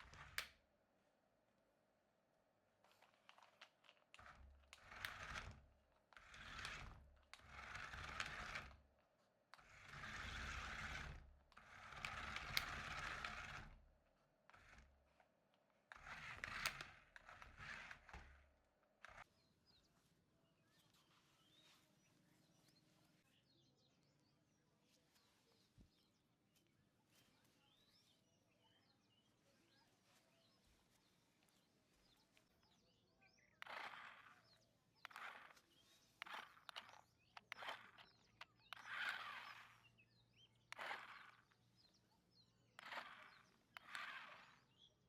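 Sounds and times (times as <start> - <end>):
toy car electric motors whirring: 0.0 - 0.6, 2.9 - 8.9, 9.5 - 19.3, 33.5 - 42.0, 42.6 - 45.0.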